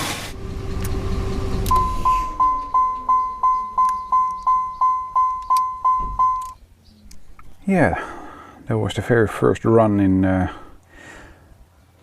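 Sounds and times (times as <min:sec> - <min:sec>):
faint hum falling in pitch: 0:00.0 - 0:07.1
electronic warning chime dinging: 0:00.4 - 0:06.6.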